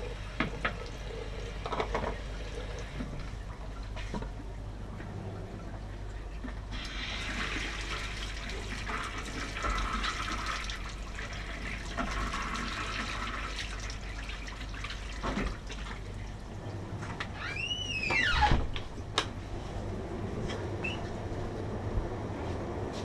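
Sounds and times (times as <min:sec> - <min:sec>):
steady low hum: 0:00.0 - 0:06.8, 0:18.6 - 0:23.0.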